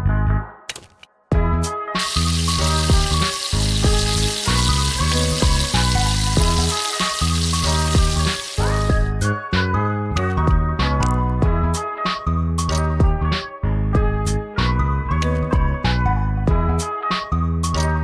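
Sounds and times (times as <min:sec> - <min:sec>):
background music: 0:00.0 - 0:18.0
fish frying in hot oil: 0:02.0 - 0:09.1.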